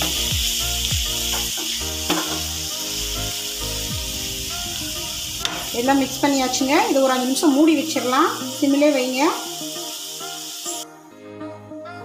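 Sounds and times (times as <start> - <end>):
background music with low beat: 0.0 - 7.3
vegetables sizzling in hot oil: 0.0 - 10.8.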